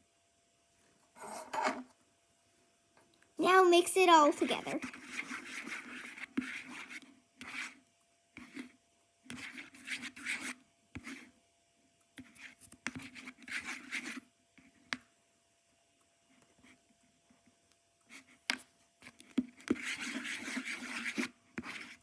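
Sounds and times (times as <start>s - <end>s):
utensil stirring and scraping slime: 3.5s - 11.4s, 12.1s - 14.9s, 18.1s - 22.0s.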